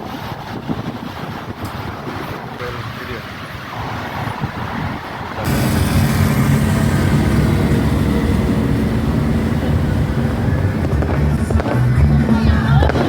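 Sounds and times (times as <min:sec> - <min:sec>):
low engine drone: 0:05.4 - 0:12.3
constant rushing noise: 0:05.4 - 0:13.0.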